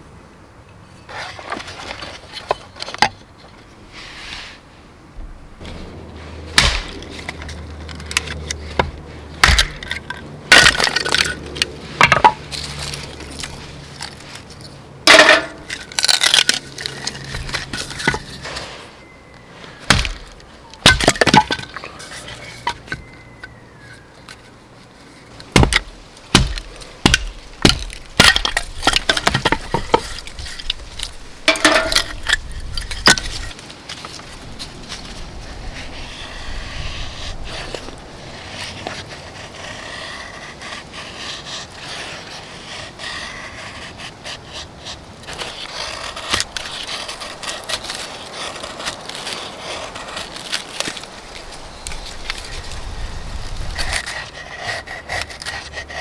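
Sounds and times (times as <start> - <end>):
dry wood snapping: 6.5 - 18.7, 19.8 - 23.6, 25.4 - 35.2, 45.3 - 55.7.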